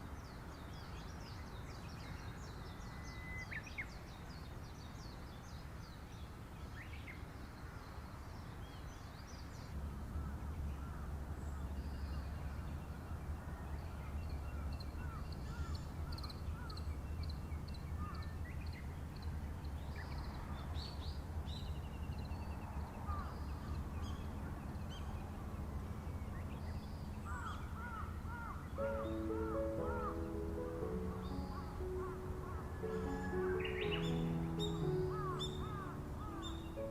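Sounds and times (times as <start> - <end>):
birds chirping: 21.7 - 36.9
crows cawing: 27.3 - 34.1, 34.8 - 36.6.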